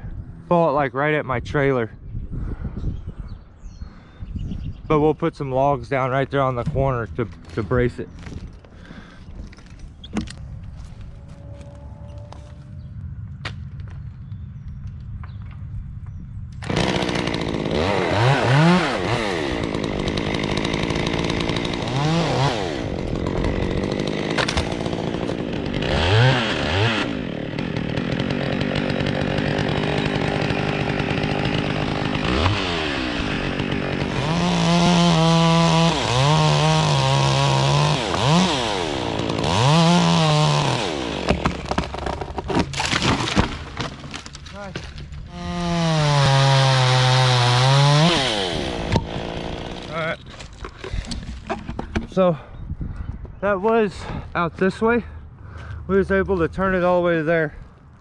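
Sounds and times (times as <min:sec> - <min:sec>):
chainsaw cutting wood: 0:16.6 - 0:52.1.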